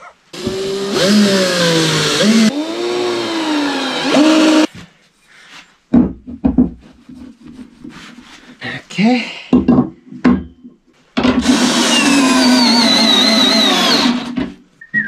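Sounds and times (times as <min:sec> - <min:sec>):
power tool running on metal: 0:00.4 - 0:04.7, 0:11.4 - 0:14.4.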